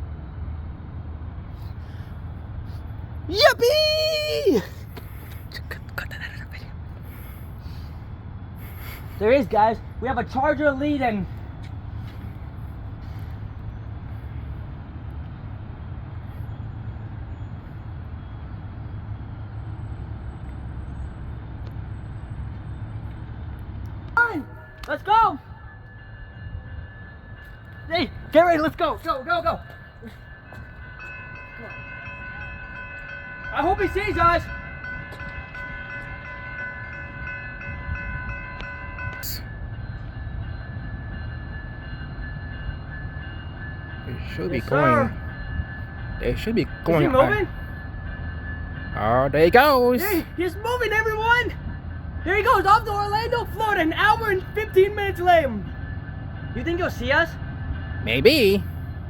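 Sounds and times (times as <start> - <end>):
diesel locomotive engine rumble: 0.0 - 59.0
steady high tones: 24.2 - 59.0.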